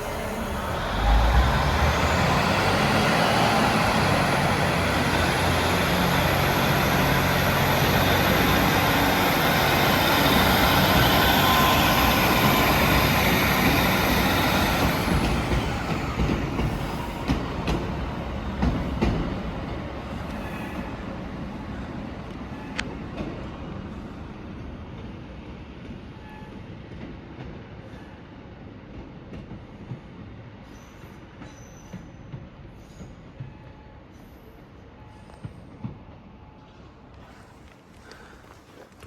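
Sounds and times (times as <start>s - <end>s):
wheels clicking on rail joints: 0.0s - 20.9s, 36.6s - 39.0s
train rumbling past: 0.0s - 39.0s.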